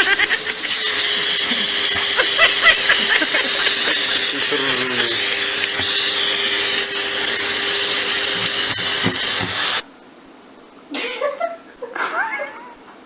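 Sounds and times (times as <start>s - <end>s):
small motor whirring: 0.0s - 9.8s.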